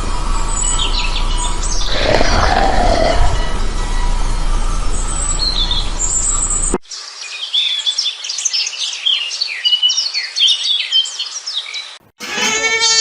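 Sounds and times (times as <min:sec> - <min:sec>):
low rumbling background: 0:00.0 - 0:06.8.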